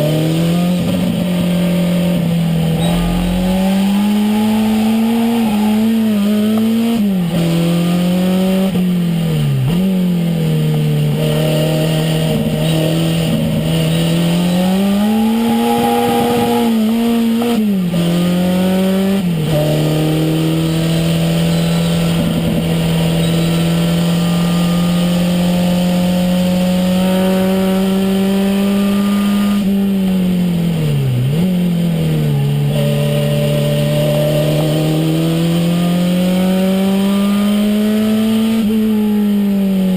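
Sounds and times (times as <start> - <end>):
car engine under hard acceleration: 0.0 - 39.9.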